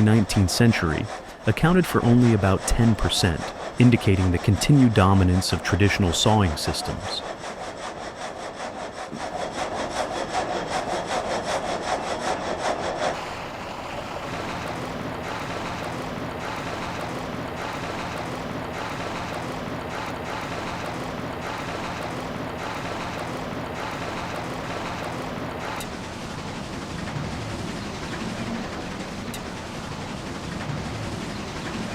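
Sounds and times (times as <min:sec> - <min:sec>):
frame saw rasping through wood: 0:00.0 - 0:25.8
mill drive running with slow beat: 0:07.2 - 0:31.9.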